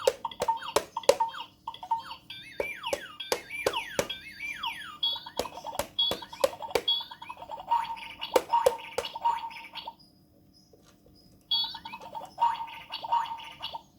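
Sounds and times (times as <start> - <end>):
clicking beat: 2.6 - 4.2, 5.4 - 6.9.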